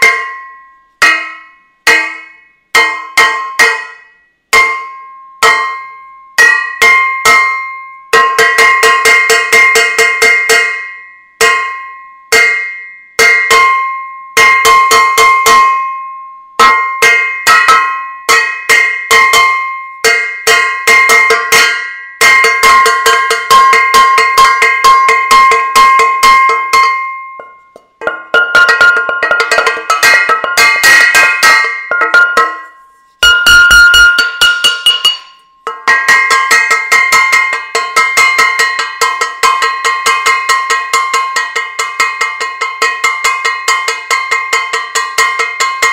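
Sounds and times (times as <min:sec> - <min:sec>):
metal saucepan being banged: 0:00.0 - 0:04.0, 0:16.6 - 0:45.9.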